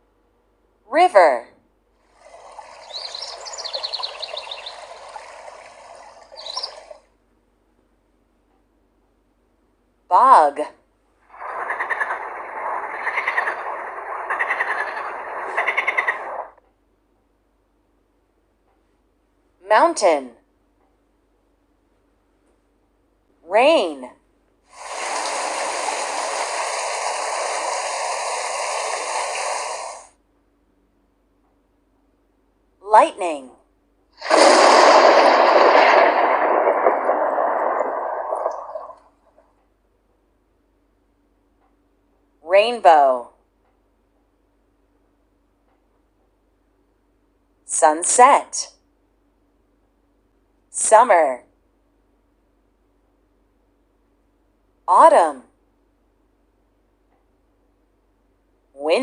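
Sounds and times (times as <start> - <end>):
rain downpour hiss: 2.0 - 7.0, 11.3 - 16.5, 24.7 - 30.1, 34.2 - 39.4
river flowing: 2.2 - 6.9, 24.8 - 30.0
birds chirping: 2.2 - 7.0.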